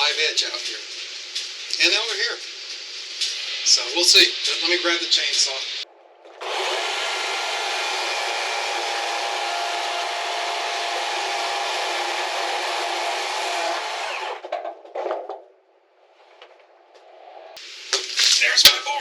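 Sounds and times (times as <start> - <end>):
power saw cutting wood: 6.4 - 14.4.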